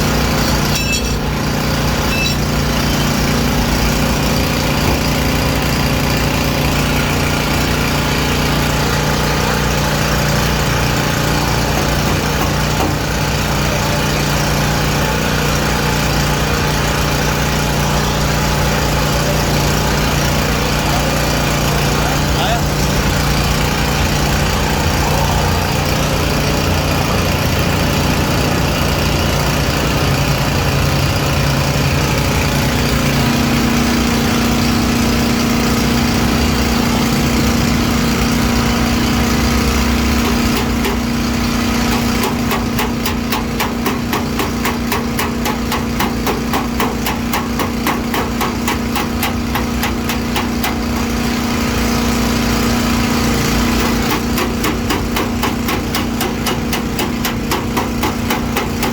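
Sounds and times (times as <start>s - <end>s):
motor running: 0.0s - 58.9s
hammering on sheet metal: 11.0s - 13.3s, 39.9s - 51.0s, 53.6s - 58.9s.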